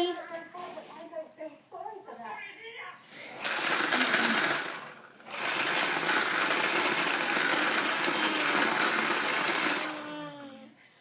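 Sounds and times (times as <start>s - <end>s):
vacuum cleaner motor whirring: 3.4s - 10.5s.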